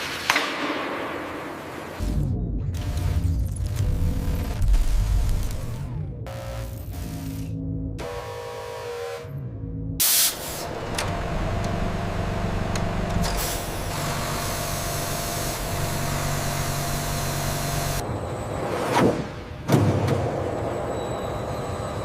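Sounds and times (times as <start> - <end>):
low machinery hum: 2.0 - 18.9
machinery hissing: 10.0 - 18.0.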